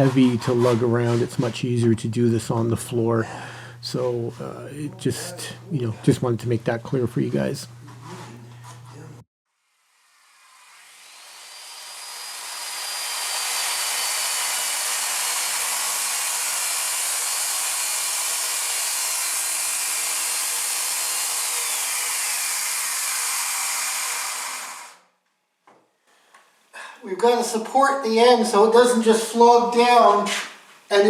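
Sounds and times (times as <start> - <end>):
circular saw cutting a panel: 9.5 - 25.0.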